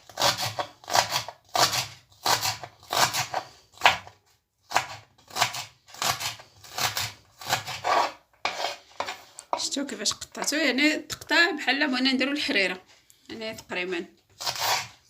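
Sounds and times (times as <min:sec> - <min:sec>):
knife cutting on a cutting board: 0:00.1 - 0:04.1, 0:04.7 - 0:09.5, 0:14.4 - 0:15.0.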